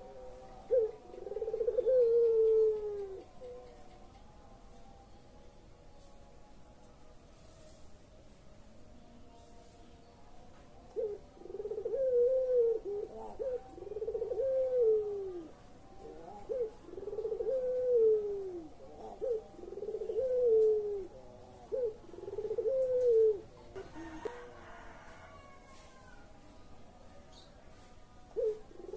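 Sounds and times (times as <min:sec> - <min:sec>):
dove cooing: 0:00.0 - 0:04.0, 0:10.9 - 0:24.8, 0:28.3 - 0:28.9.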